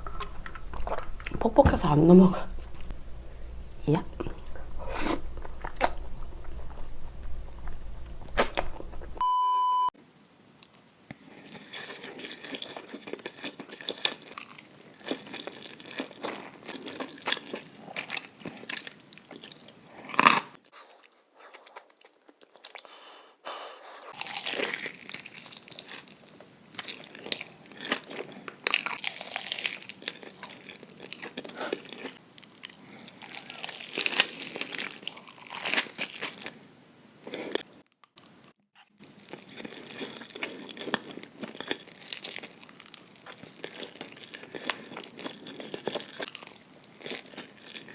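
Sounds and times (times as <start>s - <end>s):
close chewing and mouth sounds: 0.0s - 1.5s, 2.6s - 9.2s, 10.6s - 36.6s, 37.2s - 47.9s
short steady beep: 9.2s - 10.0s.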